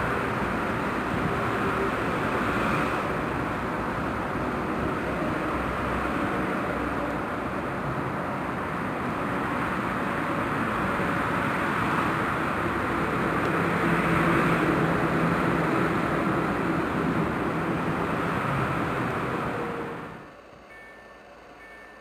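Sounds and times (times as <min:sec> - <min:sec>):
train wheels on rails: 0:00.0 - 0:22.0.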